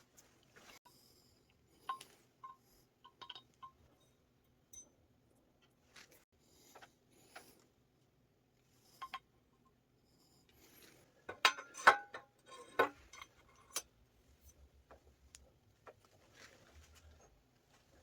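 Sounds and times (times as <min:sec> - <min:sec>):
light metallic clicks and clinks: 0:01.7 - 0:05.0.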